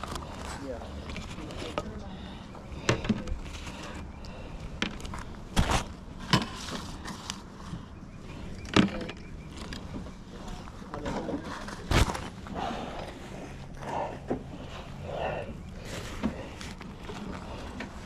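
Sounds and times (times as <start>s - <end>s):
low steady background noise: 0.0s - 18.0s.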